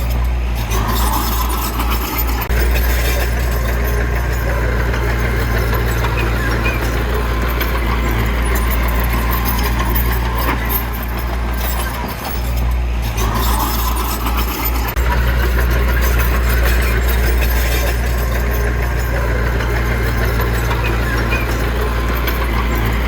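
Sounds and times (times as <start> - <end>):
diesel engine humming: 0.0 - 23.0.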